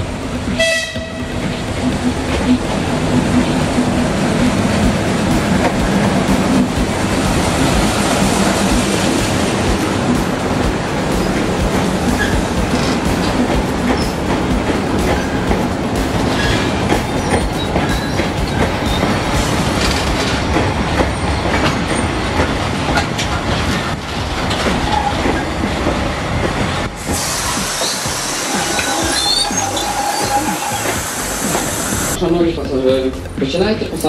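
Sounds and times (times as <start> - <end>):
clickety-clack over rail joints: 0.0 - 34.0
train wheels rumbling on rails: 0.0 - 34.0
wheel squeals: 27.2 - 32.2.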